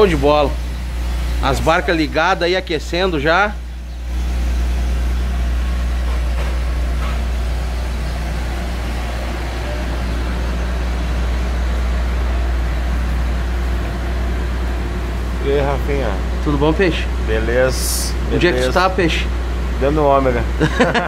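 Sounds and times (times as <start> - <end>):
car engines idling: 0.0 - 21.0.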